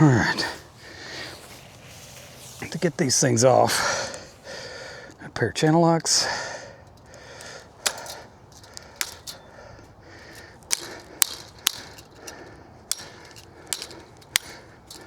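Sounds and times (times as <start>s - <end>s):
metallic clicks of pliers on wire: 5.9s - 15.0s.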